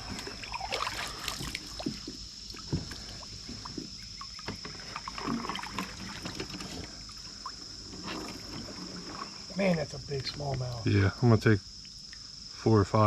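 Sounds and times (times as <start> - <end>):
faint water trickle: 0.0 - 13.0
knocks and taps on kayak: 1.4 - 4.8.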